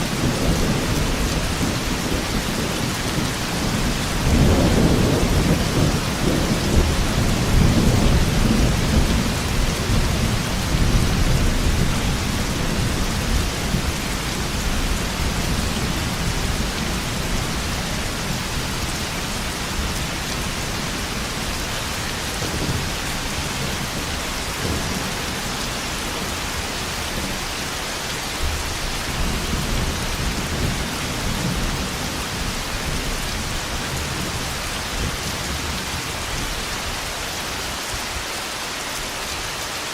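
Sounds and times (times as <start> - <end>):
heavy rain: 0.0 - 39.9
rolling thunder: 0.1 - 27.5.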